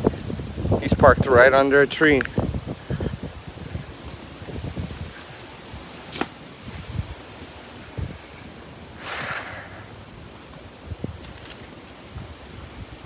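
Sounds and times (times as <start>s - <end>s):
wind rustling tree leaves: 0.0s - 13.0s.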